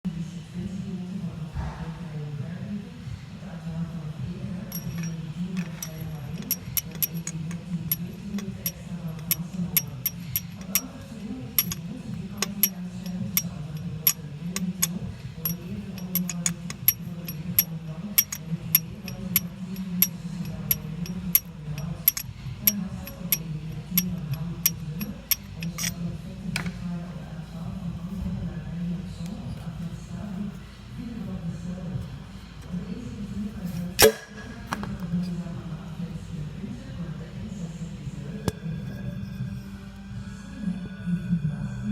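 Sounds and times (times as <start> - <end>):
sharp irregular engine clicking: 11.6 - 25.9.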